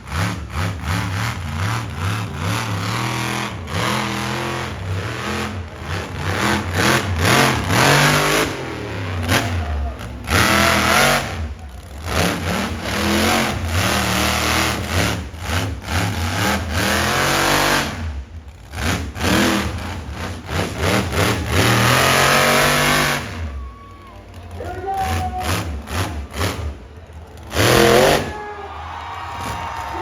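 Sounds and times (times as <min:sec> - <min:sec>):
monster truck engine revving: 0:00.0 - 0:30.0.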